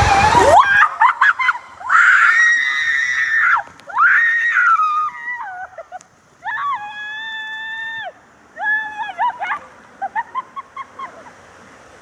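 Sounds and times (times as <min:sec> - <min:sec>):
people screaming: 0:00.0 - 0:05.8.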